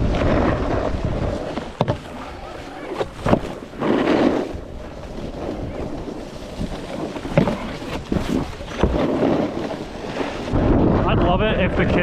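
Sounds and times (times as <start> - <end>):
snowboard scraping over snow: 0.0 - 12.0
wind buffeting microphone: 0.0 - 12.0.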